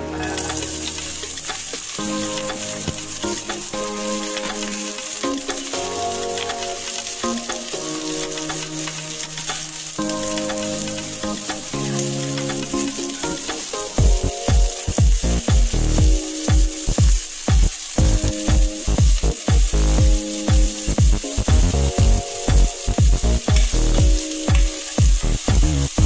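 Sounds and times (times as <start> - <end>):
onion sizzling in oil: 0.1 - 26.0
background music with bass beat: 11.8 - 26.0.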